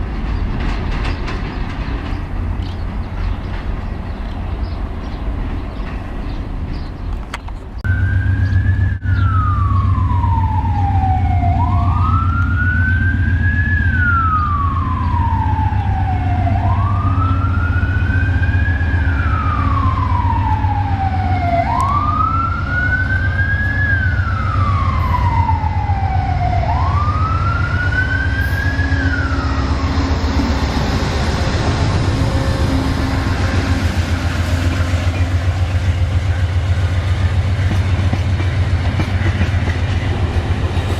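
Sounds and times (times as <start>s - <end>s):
emergency vehicle siren wailing: 7.8s - 34.1s.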